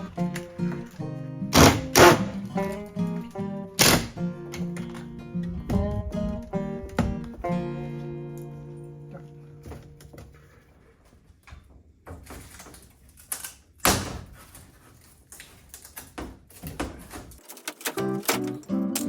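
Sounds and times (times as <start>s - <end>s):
guitar music: 0.0s - 10.4s, 17.8s - 19.0s
knocks and thuds: 4.8s - 7.8s, 16.1s - 17.4s.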